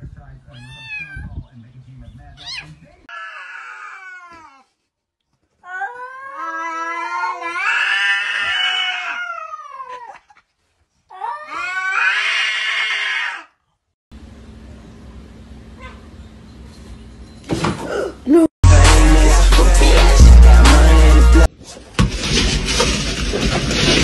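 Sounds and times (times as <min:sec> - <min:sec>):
cat yowling: 0:00.6 - 0:01.2, 0:02.4 - 0:04.7, 0:05.6 - 0:10.2, 0:11.2 - 0:13.5.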